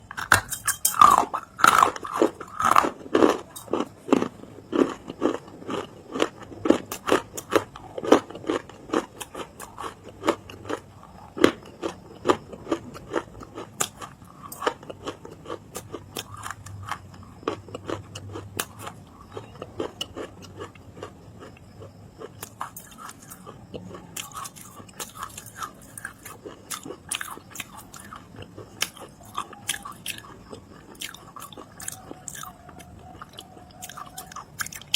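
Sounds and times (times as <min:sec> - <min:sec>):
crunching and chewing clay: 0:00.0 - 0:34.9.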